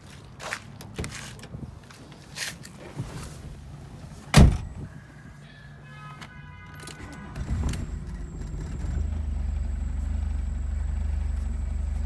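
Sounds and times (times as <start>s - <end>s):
car door shutting: 4.3s - 4.9s, 6.9s - 12.0s.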